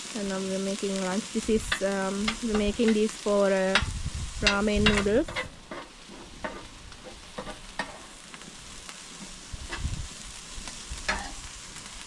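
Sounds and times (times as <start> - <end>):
food sizzling in a pan: 0.0 - 12.0
utensil clicking against pan: 3.7 - 6.7.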